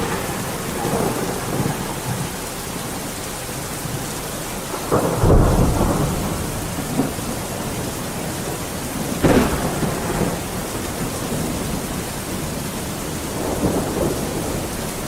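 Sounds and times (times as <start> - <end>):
steady rain: 0.0 - 15.0
thunder rolling: 0.0 - 15.0.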